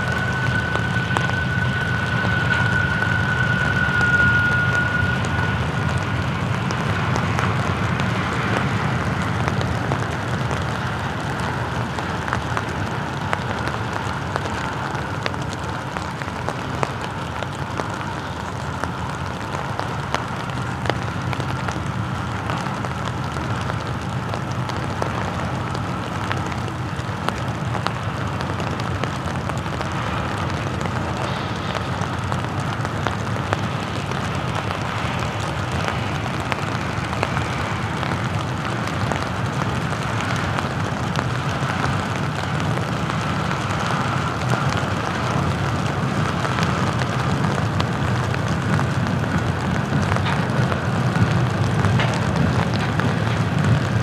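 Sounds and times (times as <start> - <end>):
diesel locomotives rumbling: 0.0 - 54.0
rain hissing and pattering: 0.0 - 54.0
wheels clicking on rails: 0.0 - 54.0.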